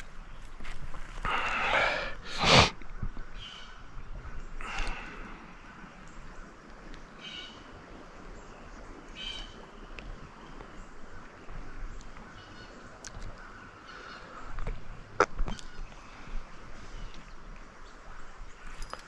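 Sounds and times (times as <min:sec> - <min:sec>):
outdoor background hiss: 0:00.0 - 0:19.0
bird high calls: 0:07.2 - 0:07.8, 0:09.1 - 0:09.9.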